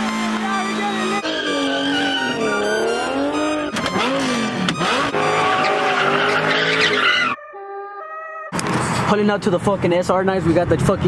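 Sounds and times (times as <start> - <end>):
car engine revving: 0.0 - 7.4
tyres squealing and skidding: 0.6 - 8.6.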